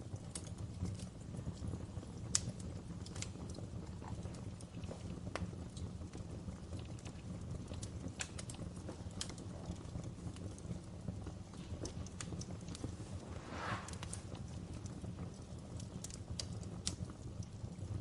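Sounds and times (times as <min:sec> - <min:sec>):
wood fire crackling: 0:00.0 - 0:18.0
brief hiss: 0:13.0 - 0:14.5.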